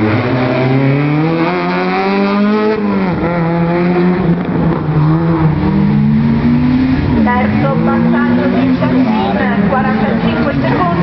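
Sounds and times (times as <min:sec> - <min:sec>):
race car engine revving: 0:00.0 - 0:11.0.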